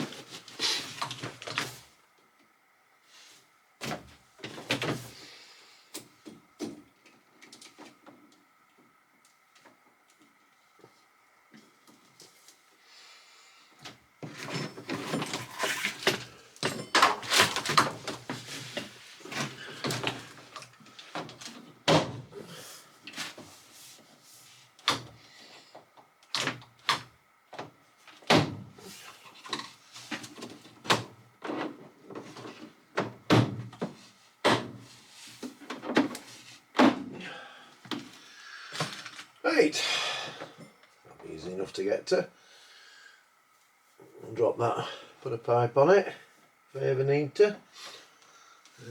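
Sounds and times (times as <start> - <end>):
knocks thuds and clatter: 21.2 - 22.3, 30.2 - 34.9.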